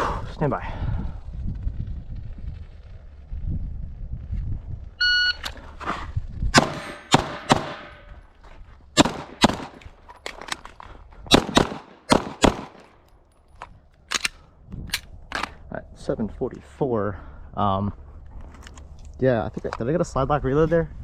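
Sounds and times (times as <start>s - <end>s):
shot timer beep: 5.0s - 5.4s
handgun shots: 6.6s - 8.1s, 9.0s - 9.9s, 11.3s - 12.9s.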